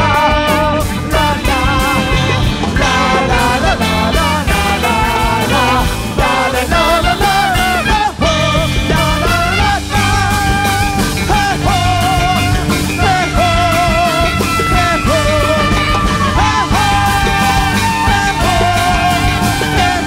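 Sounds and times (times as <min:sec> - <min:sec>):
jazz big band playing: 0:00.0 - 0:20.0.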